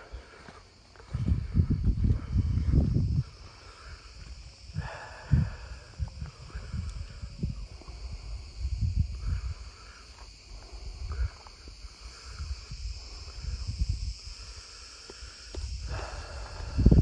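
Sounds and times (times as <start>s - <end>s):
insects chirring: 0.0s - 17.0s
low rumbles on microphone: 1.1s - 3.4s, 15.6s - 17.0s.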